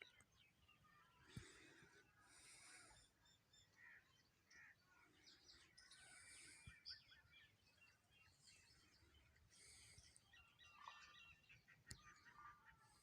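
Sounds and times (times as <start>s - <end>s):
birds chirping and singing: 0.0s - 13.0s.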